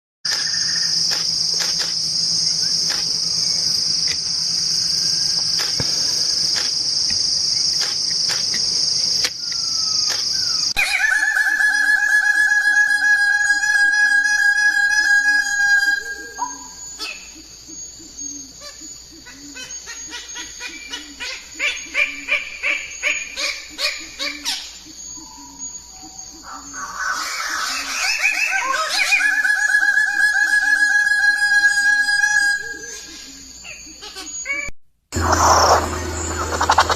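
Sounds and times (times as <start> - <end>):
birds calling: 0.3 - 11.4, 16.0 - 29.4, 32.7 - 36.9
shrill insect chorus: 0.3 - 36.9.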